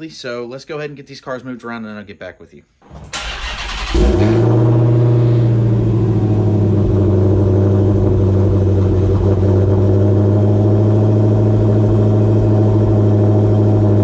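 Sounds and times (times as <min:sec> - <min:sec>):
car engine idling: 0:03.1 - 0:14.0.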